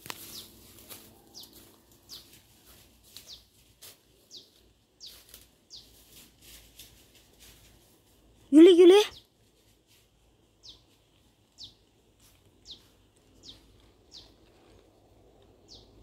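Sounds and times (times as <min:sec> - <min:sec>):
bird chirping: 0:00.1 - 0:02.4, 0:03.2 - 0:03.5, 0:04.2 - 0:06.0, 0:10.6 - 0:10.9, 0:11.5 - 0:11.9, 0:12.6 - 0:14.7, 0:15.6 - 0:16.0.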